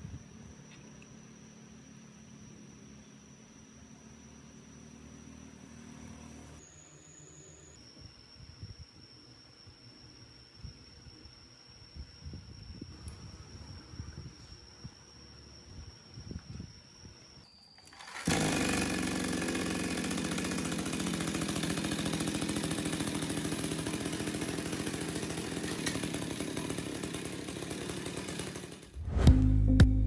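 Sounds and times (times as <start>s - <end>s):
small two-stroke engine running: 0.6s - 7.8s, 17.8s - 30.0s
music: 29.1s - 30.0s.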